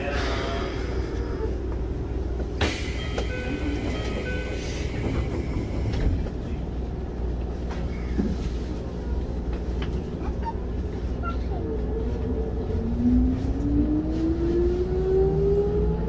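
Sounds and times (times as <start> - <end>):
train equipment low hum: 0.0 - 16.0.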